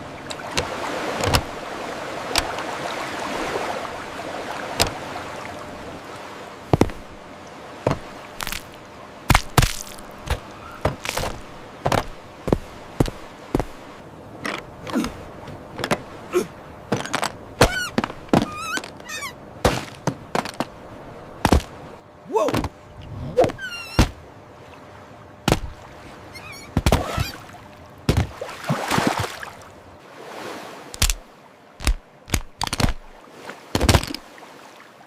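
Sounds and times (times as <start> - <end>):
sharp knocks and thuds: 6.7 - 7.1, 7.8 - 8.7, 9.3 - 13.8, 16.9 - 19.0, 19.6 - 20.8, 21.4 - 21.8, 22.4 - 22.8, 23.4 - 24.2, 25.4 - 25.8, 28.1 - 28.4, 31.8 - 34.2
short chirping calls: 17.7 - 19.4, 26.3 - 27.4.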